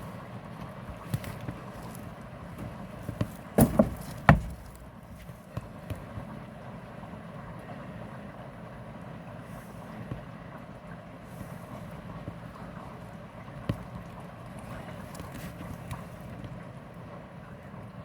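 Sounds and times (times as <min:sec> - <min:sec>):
knocks or bumps: 0:02.7 - 0:04.8.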